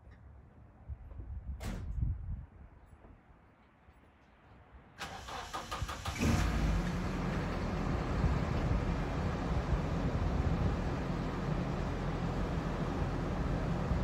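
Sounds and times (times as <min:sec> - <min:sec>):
car engine idling: 0:06.0 - 0:14.0.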